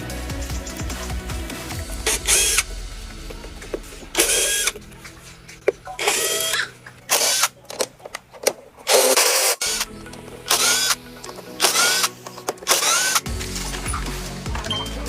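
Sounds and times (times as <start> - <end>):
power tool bursts: 2.1 - 2.7, 4.2 - 4.8, 6.0 - 7.5, 8.9 - 9.9, 10.5 - 11.0, 11.6 - 13.3.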